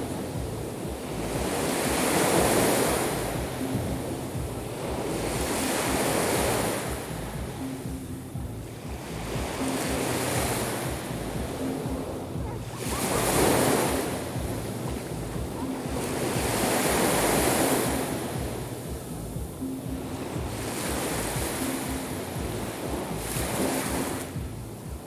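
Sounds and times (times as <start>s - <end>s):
sea waves breaking on shore: 0.0s - 25.0s.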